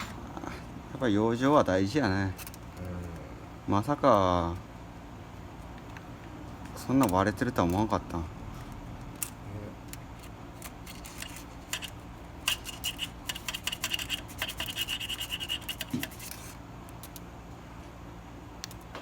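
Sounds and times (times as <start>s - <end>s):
metal tool scraping engine parts: 10.6s - 16.6s.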